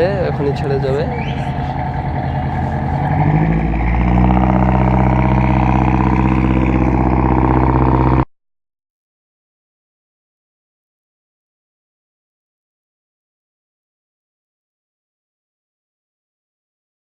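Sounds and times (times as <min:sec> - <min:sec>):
boat engine droning: 0:00.0 - 0:08.3.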